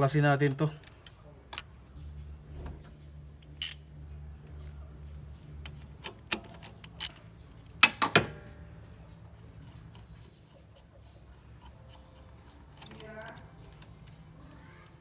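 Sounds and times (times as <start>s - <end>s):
hand tools and metal parts clinking: 3.4s - 4.0s, 5.4s - 8.4s.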